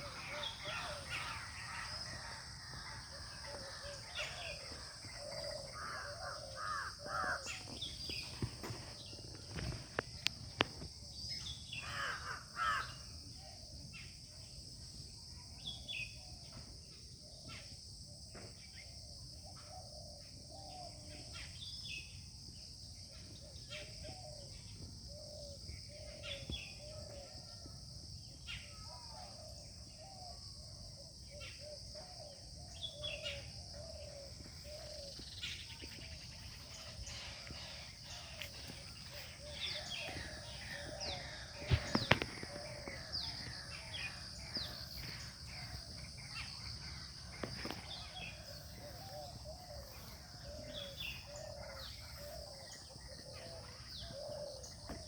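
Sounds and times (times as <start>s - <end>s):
birds calling: 0.0s - 12.9s, 31.3s - 55.0s.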